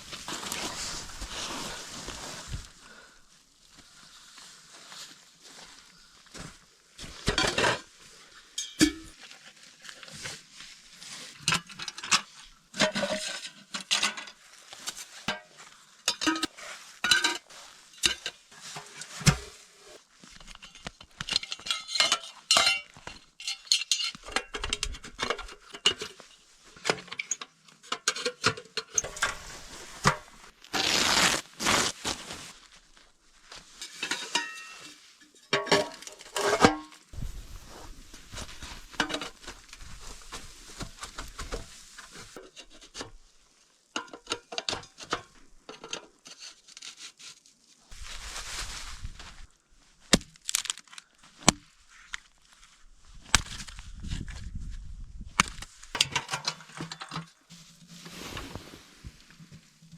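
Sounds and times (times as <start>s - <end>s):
rustling: 0.0s - 5.8s, 29.0s - 35.2s, 36.2s - 43.4s, 46.8s - 56.0s, 57.4s - 59.9s
metal cookware clinking: 8.6s - 9.1s, 34.0s - 34.8s.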